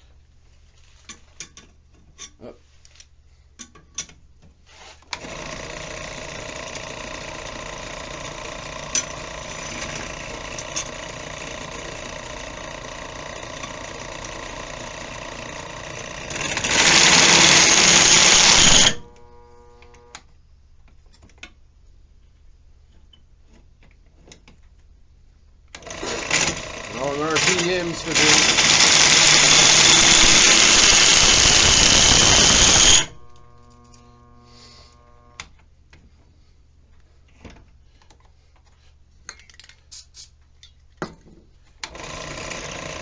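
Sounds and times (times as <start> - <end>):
electric drill boring metal: 5.2 - 20.2, 25.8 - 35.4, 41.9 - 43.0.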